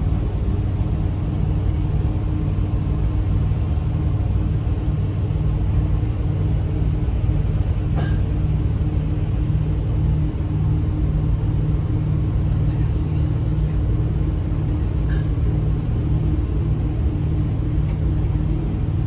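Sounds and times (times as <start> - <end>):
boat engine rumbling: 0.0 - 9.8.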